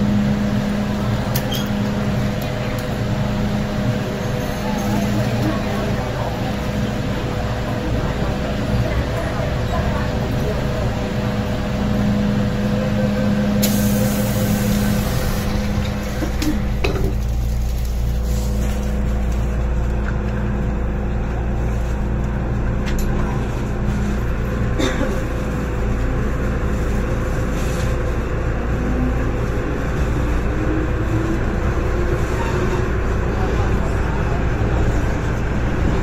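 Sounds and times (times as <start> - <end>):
train wheels rumbling and humming: 0.0 - 36.0
hiss: 13.6 - 15.5.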